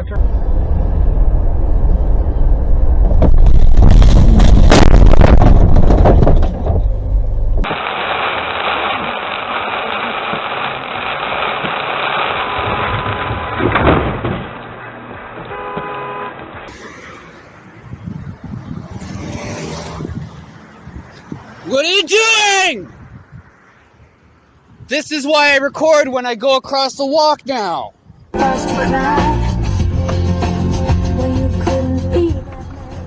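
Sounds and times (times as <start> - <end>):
car engine and road noise: 0.0 - 26.0, 28.0 - 33.0
traffic noise: 0.0 - 28.4
car horn honk: 12.4 - 14.1, 15.4 - 16.5.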